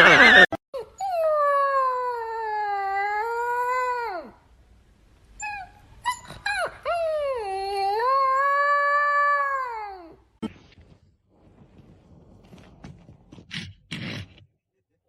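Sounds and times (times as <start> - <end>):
dog whining and howling: 0.8 - 4.4, 5.4 - 10.2.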